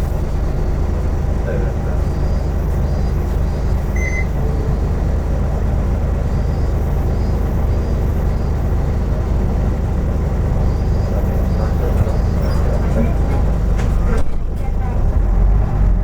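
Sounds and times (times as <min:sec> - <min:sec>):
bus engine and road noise: 0:00.0 - 0:16.0
short high electronic beep: 0:04.0 - 0:04.4.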